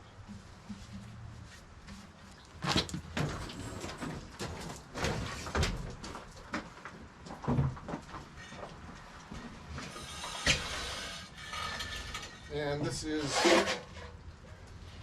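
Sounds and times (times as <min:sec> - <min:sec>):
objects knocking and clunking: 0:02.6 - 0:10.7.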